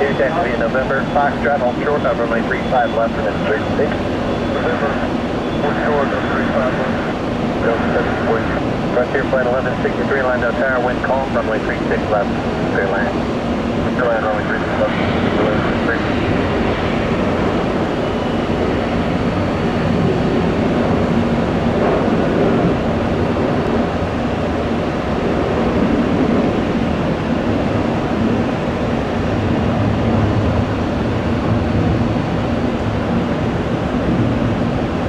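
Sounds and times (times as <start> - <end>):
faint high whine: 0.0 - 23.9
jet engines running: 0.0 - 35.0.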